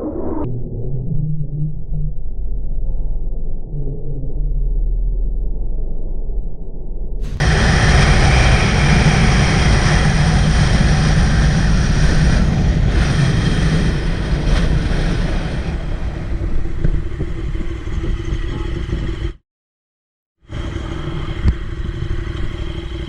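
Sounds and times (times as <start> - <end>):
motorcycle engine running: 7.2 - 15.0
road noise: 7.2 - 19.3.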